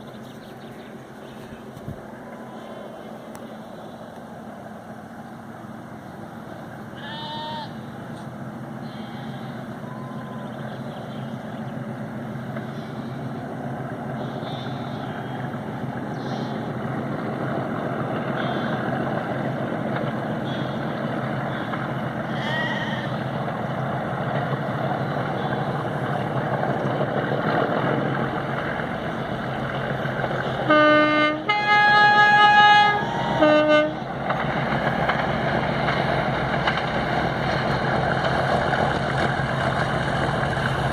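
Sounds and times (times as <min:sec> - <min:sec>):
diesel locomotive engine rumble: 0:00.0 - 0:40.9
two-tone train horn: 0:07.0 - 0:07.8, 0:08.8 - 0:10.6, 0:30.6 - 0:34.1.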